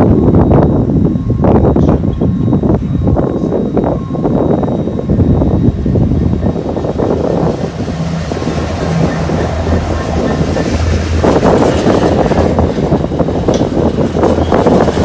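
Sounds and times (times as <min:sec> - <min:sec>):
diesel locomotive engine droning: 0:00.0 - 0:15.0
wind buffeting microphone: 0:00.0 - 0:15.0
wagons running on rails: 0:06.2 - 0:15.0.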